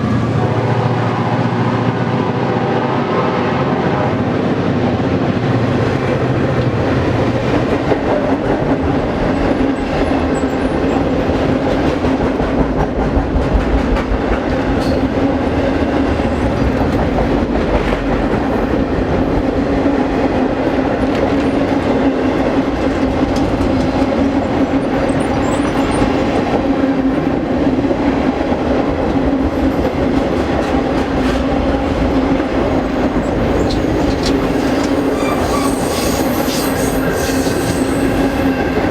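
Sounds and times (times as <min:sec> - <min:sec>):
train rolling hum: 0:00.0 - 0:38.9.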